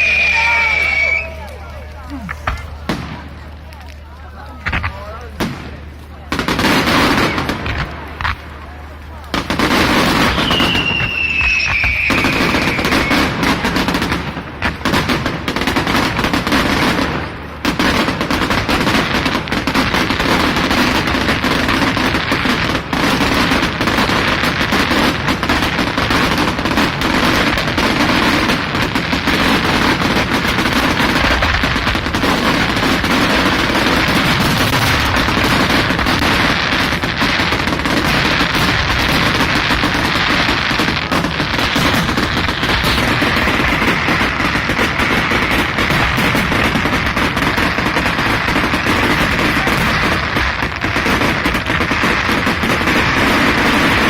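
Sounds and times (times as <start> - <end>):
whistling firework: 0.0 - 1.7, 6.6 - 8.4, 9.4 - 17.0
fireworks bangs and crackles: 0.0 - 54.0.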